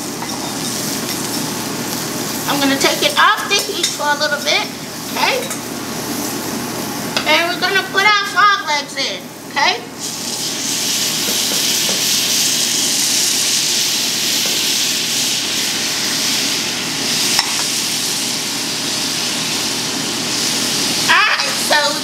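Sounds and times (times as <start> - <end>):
frog legs sizzling in a pan: 0.0 - 8.8, 10.0 - 22.0.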